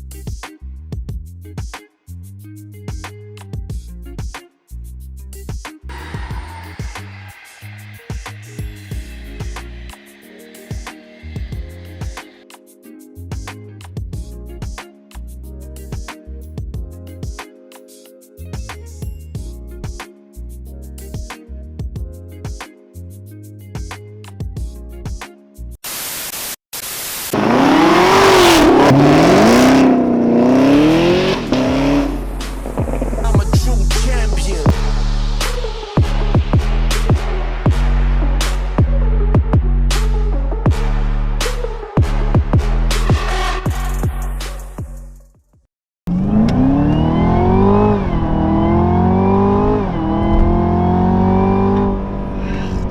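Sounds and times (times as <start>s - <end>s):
car engine revving: 27.3s - 33.6s, 46.1s - 52.9s.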